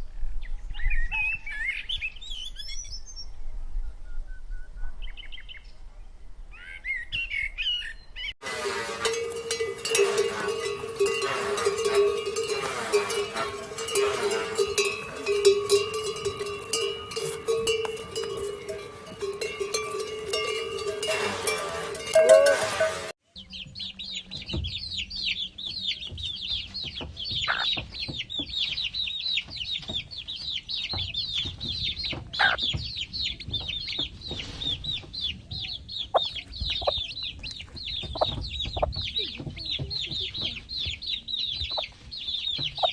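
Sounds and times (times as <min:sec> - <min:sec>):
high peeping: 0:08.4 - 0:23.9, 0:35.0 - 0:42.0
chickens calling: 0:08.4 - 0:42.9
small birds chirping: 0:23.3 - 0:42.9.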